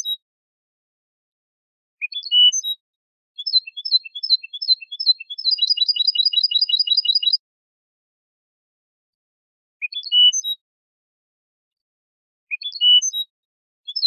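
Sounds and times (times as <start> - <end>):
goldfinch singing: 3.4 - 7.4.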